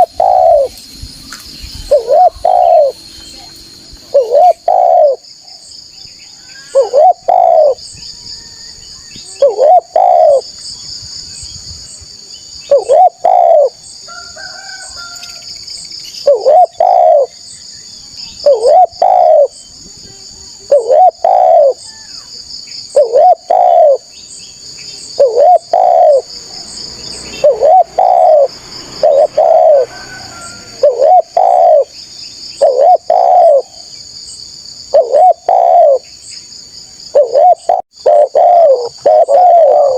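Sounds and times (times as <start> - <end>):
dove cooing: 0.0 - 0.8, 1.8 - 3.0, 4.1 - 5.2, 6.6 - 7.8, 9.3 - 10.4, 12.7 - 13.8, 16.2 - 17.3, 18.4 - 19.6, 20.6 - 21.8, 22.9 - 24.1, 25.0 - 32.0, 32.6 - 33.9, 34.9 - 36.1, 37.1 - 39.9.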